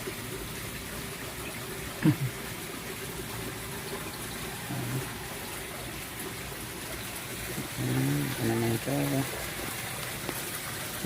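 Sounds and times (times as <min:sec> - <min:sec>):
running water: 0:00.0 - 0:11.0.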